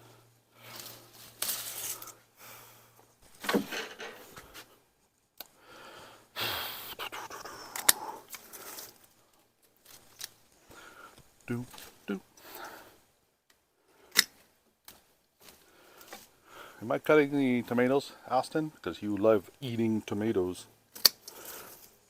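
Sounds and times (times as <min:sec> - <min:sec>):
rustling of plants and soil: 0:00.0 - 0:05.4, 0:07.7 - 0:13.1, 0:14.4 - 0:22.0.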